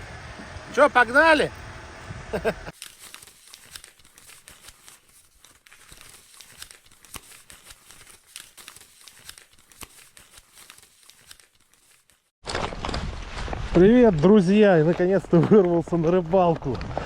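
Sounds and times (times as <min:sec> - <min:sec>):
faint crinkling rustle: 0:02.7 - 0:13.8.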